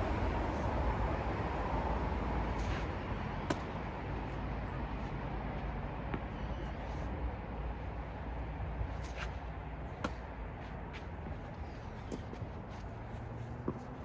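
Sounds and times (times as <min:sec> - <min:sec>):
low outdoor rumble: 0:00.0 - 0:14.0
tennis ball struck: 0:03.4 - 0:03.8, 0:10.0 - 0:10.3.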